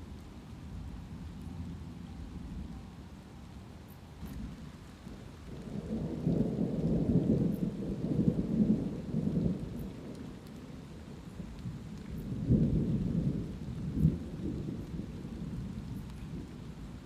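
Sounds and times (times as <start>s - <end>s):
light steady rain: 0.0s - 17.0s
thunder rumbling: 4.3s - 17.0s.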